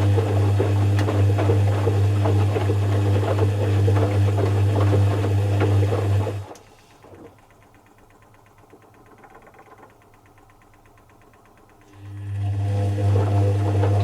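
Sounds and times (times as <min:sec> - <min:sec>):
washing machine motor humming: 0:00.0 - 0:14.0
faint rapid ticking: 0:06.6 - 0:12.0
rattling clicks: 0:07.0 - 0:11.9.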